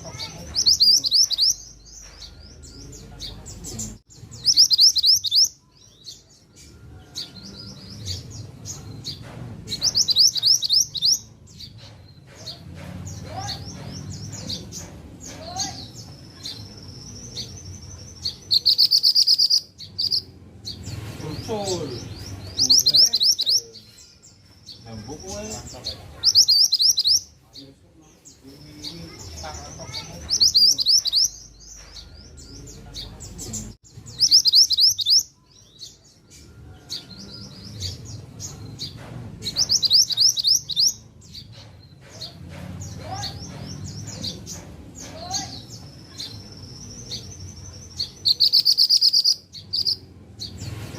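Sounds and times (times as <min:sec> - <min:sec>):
songbird singing: 0:00.0 - 0:50.9
bird whistled song: 0:04.4 - 0:09.2, 0:09.8 - 0:11.8, 0:16.0 - 0:20.3, 0:26.2 - 0:27.3, 0:34.1 - 0:42.4, 0:45.5 - 0:50.1.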